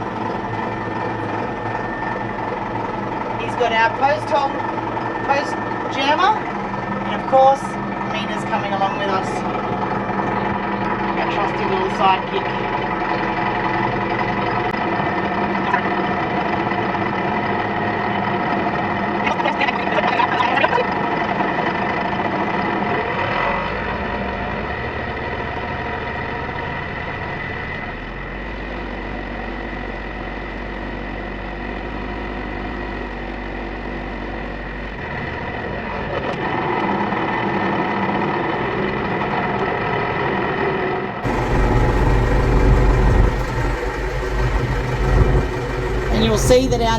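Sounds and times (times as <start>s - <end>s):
tractor engine running: 0.0s - 18.3s, 41.2s - 46.9s.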